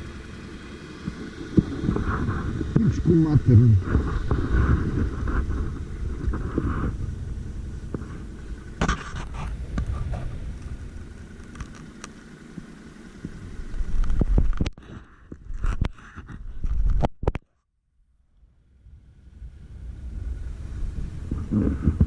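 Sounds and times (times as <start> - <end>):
engine rumbling: 0.0 - 22.0.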